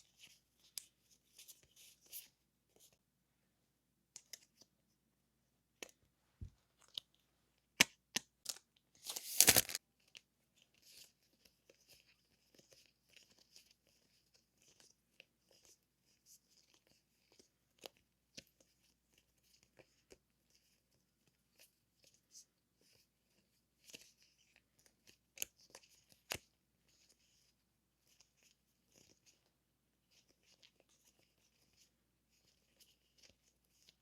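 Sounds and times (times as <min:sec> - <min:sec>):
paper crinkling and rustling: 0:08.9 - 0:15.8
paper ripping: 0:09.0 - 0:09.8.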